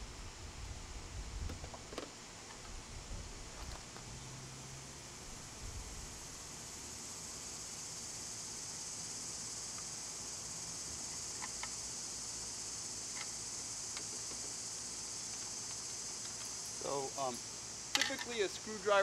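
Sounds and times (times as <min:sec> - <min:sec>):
insects chirring: 0:01.2 - 0:19.0.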